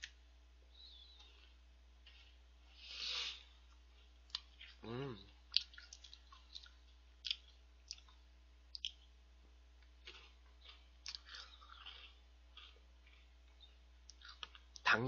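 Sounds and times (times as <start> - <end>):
crunchy snack chewing: 10.0 - 14.6.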